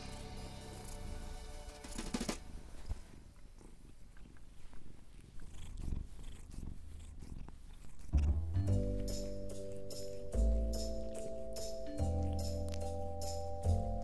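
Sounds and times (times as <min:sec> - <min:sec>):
music: 0:00.0 - 0:02.6, 0:08.2 - 0:14.0
kitten purring: 0:00.0 - 0:14.0.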